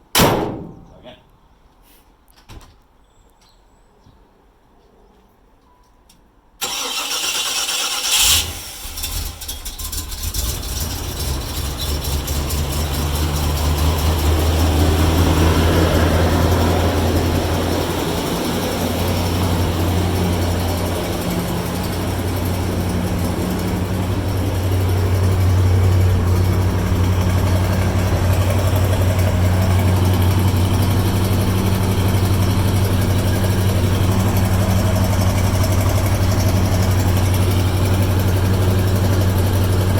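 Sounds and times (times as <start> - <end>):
starter motor cranking: 6.6 - 14.5
car engine idling: 6.6 - 39.9.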